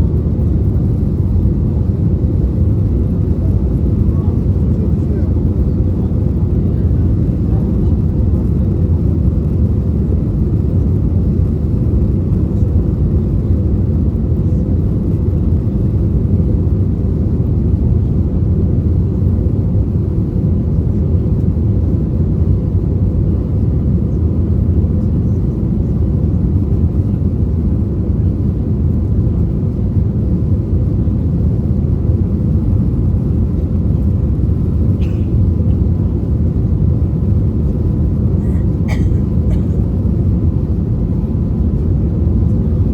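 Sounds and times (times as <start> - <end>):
airplane cabin engine roar: 0.0 - 42.9.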